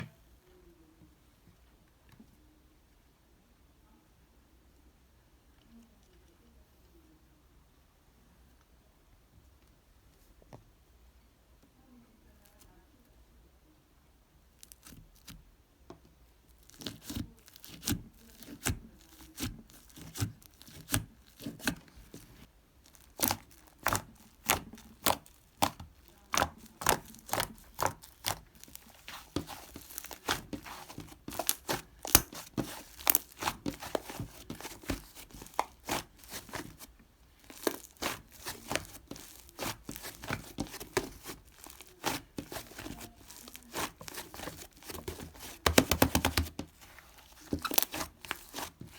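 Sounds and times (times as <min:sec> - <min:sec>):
slime crackling and popping: 0:16.6 - 0:21.7, 0:22.8 - 0:46.6, 0:47.2 - 0:48.9.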